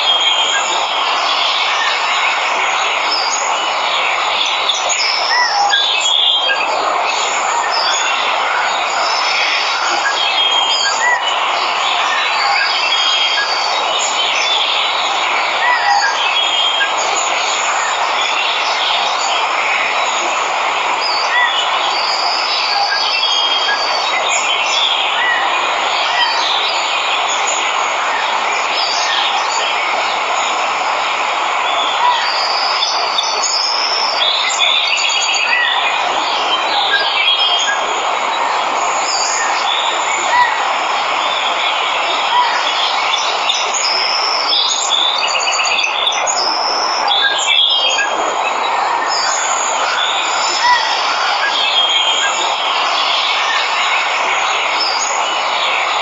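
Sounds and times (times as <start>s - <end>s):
rush of falling water: 0.0s - 56.0s.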